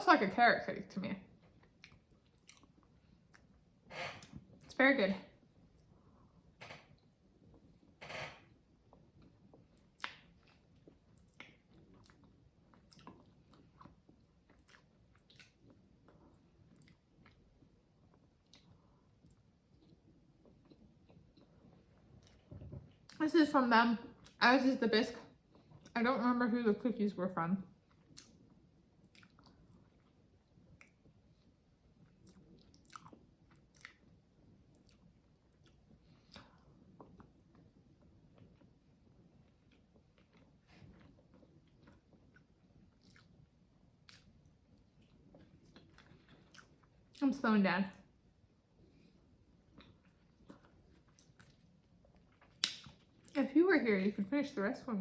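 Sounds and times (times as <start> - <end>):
person chewing cake: 1.3 - 4.6, 8.6 - 23.2, 27.7 - 47.2, 48.0 - 53.4
wet mouth clicks: 14.5 - 15.7, 29.0 - 29.6, 32.2 - 34.1, 42.3 - 43.3, 52.4 - 53.4.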